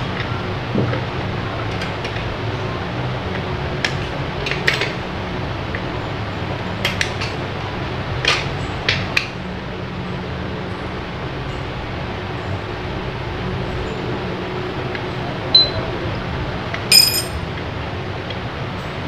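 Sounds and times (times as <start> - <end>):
metal parts clinking: 16.9 - 17.4.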